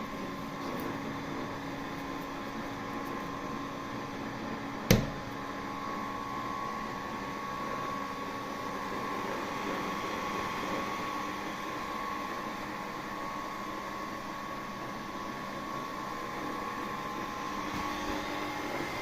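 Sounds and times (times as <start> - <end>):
refrigerator humming: 0.0 - 8.7.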